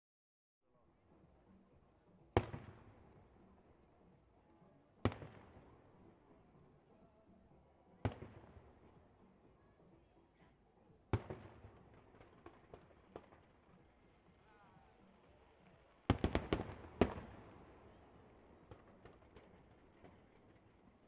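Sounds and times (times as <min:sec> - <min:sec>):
light fireworks pops: 0:02.3 - 0:03.4, 0:08.0 - 0:09.0, 0:11.1 - 0:21.0
fireworks bangs: 0:14.8 - 0:21.0.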